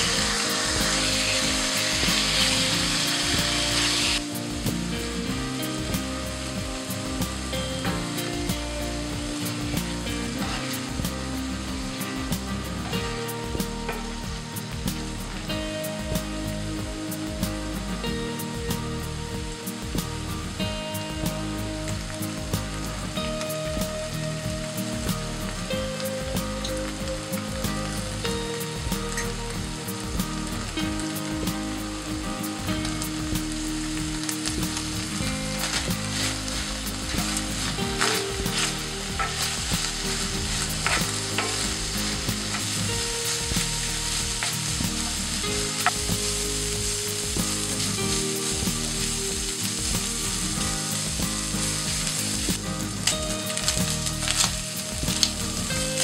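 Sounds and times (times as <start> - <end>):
chicken sizzling in a frying pan: 0.0 - 56.0
spatula scraping a pan: 35.6 - 42.9.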